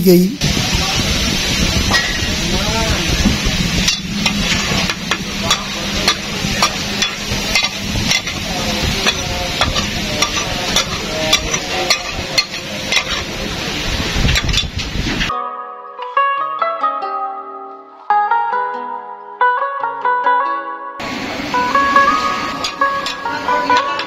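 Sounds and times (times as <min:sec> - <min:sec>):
food sizzling on griddle: 0:00.4 - 0:15.3, 0:21.0 - 0:24.0
metal spatula scraping griddle: 0:03.8 - 0:15.3.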